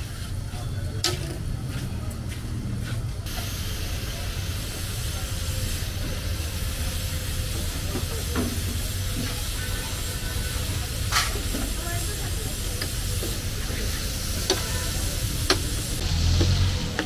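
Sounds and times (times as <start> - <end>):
liver sizzling on a hot pan: 8.8 - 16.7.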